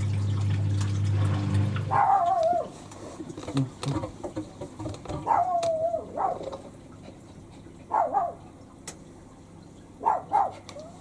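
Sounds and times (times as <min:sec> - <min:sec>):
low machine hum: 0:00.0 - 0:04.0
dog whining and yipping: 0:01.9 - 0:02.8, 0:05.2 - 0:06.5.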